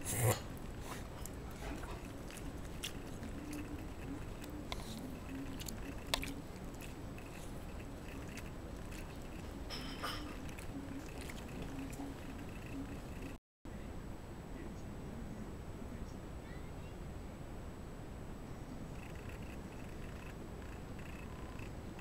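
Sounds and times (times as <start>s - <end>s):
dog mouth clicking and smacking: 1.2s - 13.4s.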